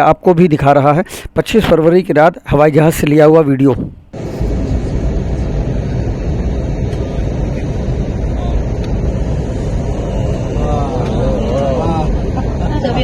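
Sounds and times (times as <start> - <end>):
rushing air: 4.1 - 13.0
airliner cabin engine rumble: 4.2 - 13.0.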